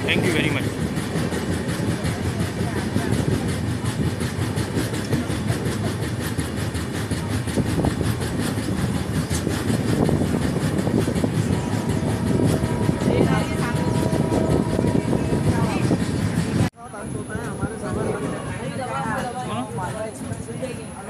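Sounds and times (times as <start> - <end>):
rushing wind: 0.0 - 21.0
train wheels rumbling on rails: 0.0 - 21.0.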